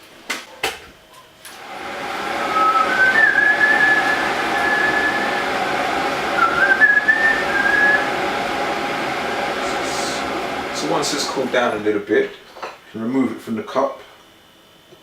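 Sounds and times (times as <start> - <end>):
kettle rushing noise: 1.5 - 12.3
wavering whistle-like tone: 2.4 - 8.2.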